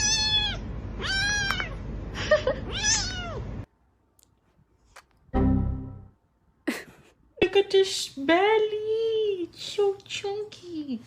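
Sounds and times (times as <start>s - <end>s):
cat meowing: 0.0s - 1.8s, 2.7s - 3.5s.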